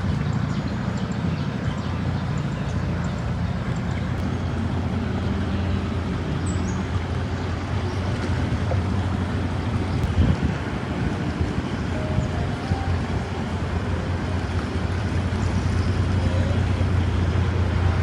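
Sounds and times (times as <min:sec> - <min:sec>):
boat engine running: 0:00.0 - 0:18.0
wind and water rushing: 0:00.0 - 0:18.0.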